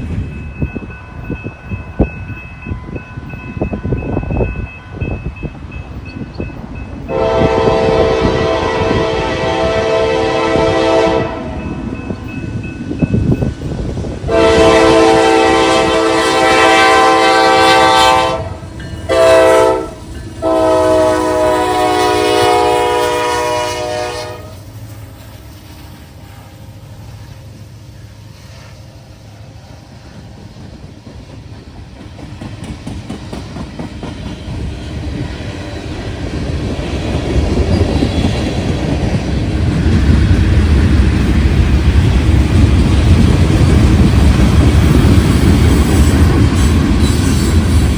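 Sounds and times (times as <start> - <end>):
train rumble and wheel noise: 0.0 - 47.9
locomotive air horn blasts: 7.1 - 11.7, 14.3 - 24.6.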